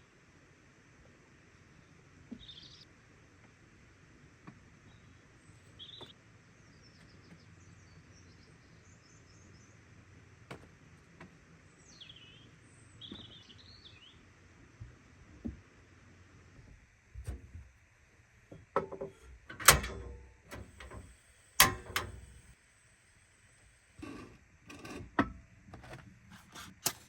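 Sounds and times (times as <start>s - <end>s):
outdoor background hiss: 0.0s - 27.0s
faint birdsong chirps: 1.6s - 2.9s, 4.8s - 10.0s, 11.6s - 14.4s.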